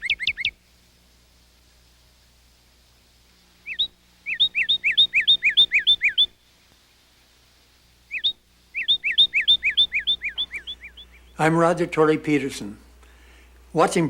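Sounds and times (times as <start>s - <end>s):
songbird whistling: 0.0s - 0.6s, 3.6s - 6.4s, 8.1s - 11.4s.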